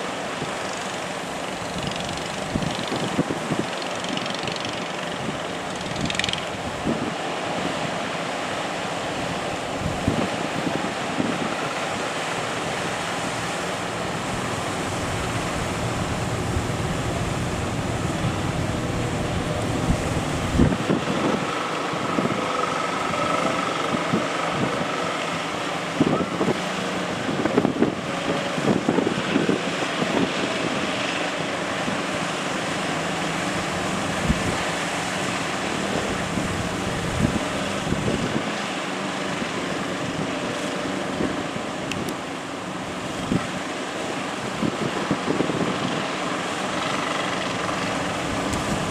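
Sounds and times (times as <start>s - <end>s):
surf breaking: 0.0s - 23.1s
boat engines running: 0.0s - 48.9s
wind buffeting microphone: 1.4s - 8.3s, 9.1s - 48.9s.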